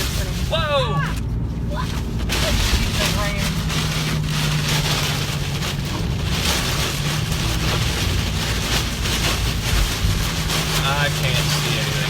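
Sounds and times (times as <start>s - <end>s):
engine and tyre hum: 0.0s - 12.0s
heavy rain on car: 0.0s - 12.0s.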